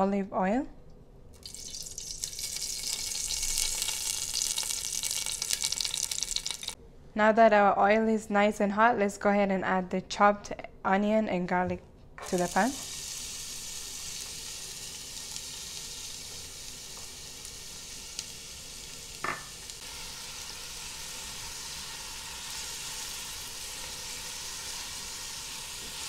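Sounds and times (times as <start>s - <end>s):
onion sizzling in oil: 1.4s - 6.8s, 12.2s - 26.0s.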